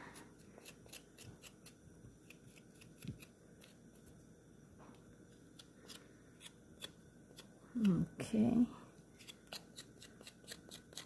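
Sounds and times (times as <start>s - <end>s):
ginger root peeling scrapes: 0.4s - 3.8s.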